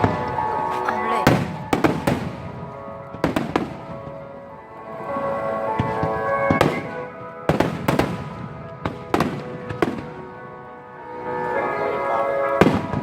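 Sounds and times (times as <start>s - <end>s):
fireworks bursting: 0.0s - 4.5s, 5.7s - 10.5s, 12.5s - 13.0s.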